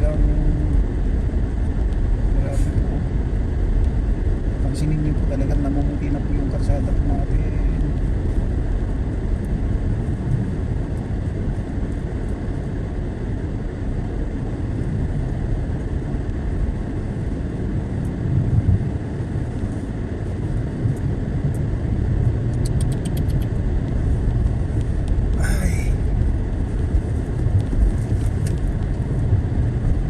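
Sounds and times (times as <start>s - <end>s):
car driving on snowy road: 0.0s - 30.0s
faint rapid ticks: 22.5s - 23.6s.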